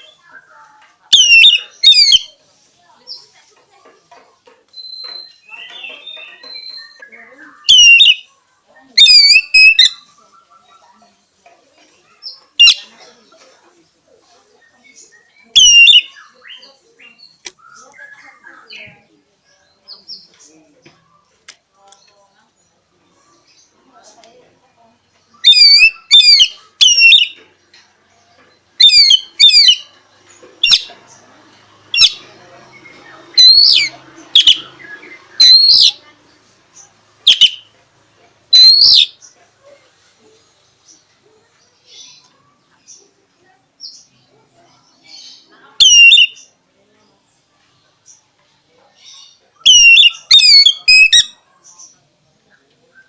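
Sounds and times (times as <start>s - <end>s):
bird singing: 0.0s - 2.4s, 4.7s - 11.0s, 12.2s - 13.1s, 14.6s - 24.4s, 25.2s - 37.8s, 38.5s - 39.5s, 40.6s - 48.4s, 49.0s - 53.0s
bird whistled calls: 1.1s - 2.3s, 4.8s - 8.3s, 9.0s - 10.1s, 15.2s - 18.8s, 25.4s - 27.4s, 28.8s - 29.9s, 33.3s - 36.0s, 37.3s - 37.7s, 38.5s - 39.2s, 45.8s - 46.5s, 49.6s - 51.4s.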